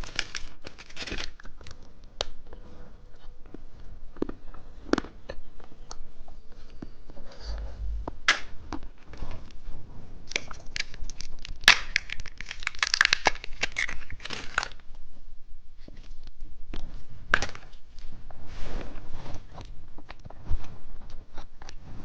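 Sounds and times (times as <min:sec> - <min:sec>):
plastic wrapper tearing and crinkling: 0:00.0 - 0:02.3, 0:10.3 - 0:14.8.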